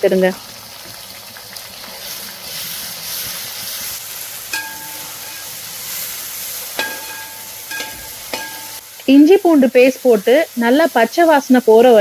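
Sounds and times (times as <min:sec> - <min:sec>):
onions sizzling in hot oil: 0:00.0 - 0:12.0
metal spatula scraping pot: 0:04.5 - 0:08.8.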